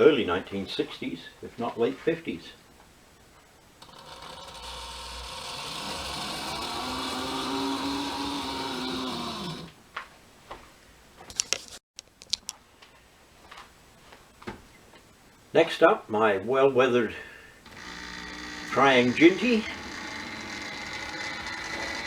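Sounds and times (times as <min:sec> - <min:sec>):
model train motor whine: 0:03.8 - 0:09.7, 0:17.6 - 0:22.0.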